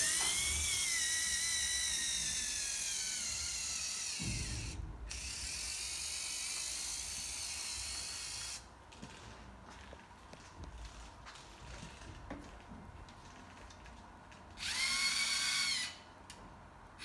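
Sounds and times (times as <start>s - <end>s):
robot motors whirring and rattling: 0.0s - 8.6s, 14.6s - 15.9s.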